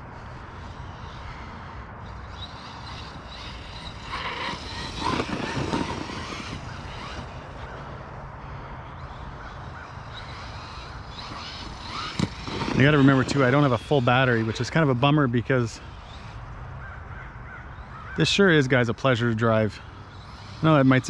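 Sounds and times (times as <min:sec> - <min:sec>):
electric rc truck motor whine: 0:00.0 - 0:17.1, 0:17.7 - 0:21.0
tyre noise: 0:02.1 - 0:07.9, 0:09.1 - 0:14.9.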